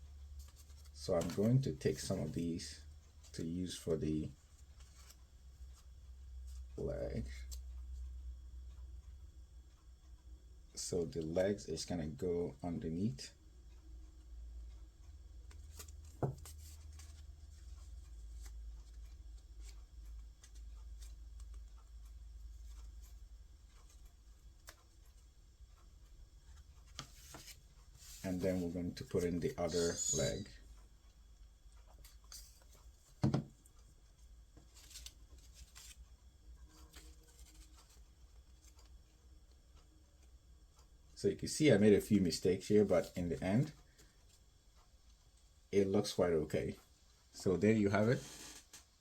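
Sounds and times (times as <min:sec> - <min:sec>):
steady low hum: 0:00.0 - 0:48.2
paper rustling: 0:00.4 - 0:02.4, 0:26.8 - 0:30.3, 0:34.6 - 0:36.0, 0:36.8 - 0:38.0.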